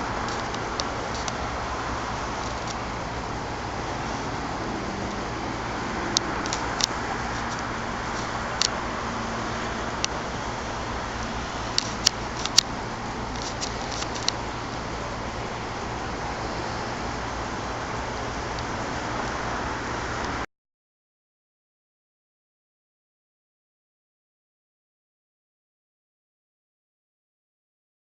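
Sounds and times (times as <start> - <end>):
low hum: 0.0 - 20.4
vehicle road noise: 0.0 - 20.5
sharp ticks: 6.1 - 8.8, 11.2 - 14.4.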